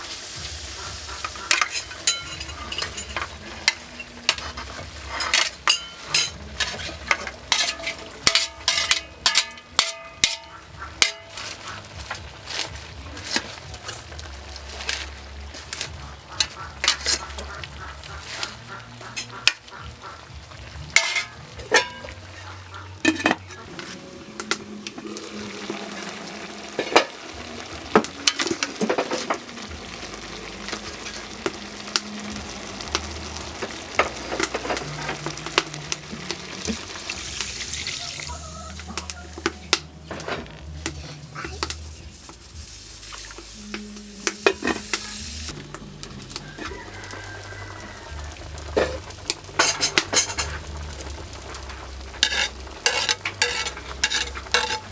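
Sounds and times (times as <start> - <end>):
food sizzling in a pan: 0.0 - 54.9
spatula scraping a pan: 0.2 - 24.5, 48.7 - 54.9.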